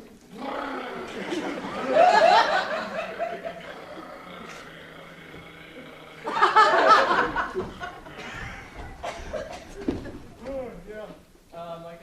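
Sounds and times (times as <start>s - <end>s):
room murmur: 0.0s - 12.0s
audience laughter: 0.9s - 4.6s, 6.2s - 10.2s.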